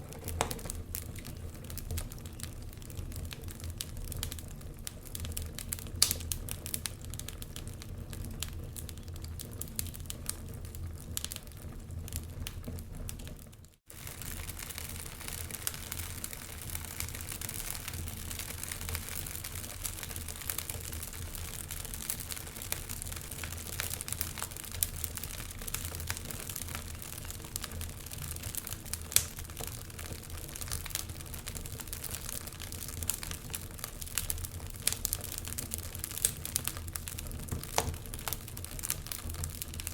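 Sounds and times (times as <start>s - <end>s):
log fire crackling and popping: 0.0s - 39.9s
low rumble of burning: 0.0s - 39.9s.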